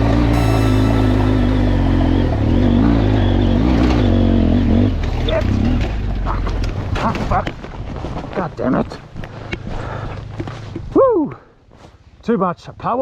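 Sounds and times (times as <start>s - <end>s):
motorcycle engine revving: 1.7s - 6.9s.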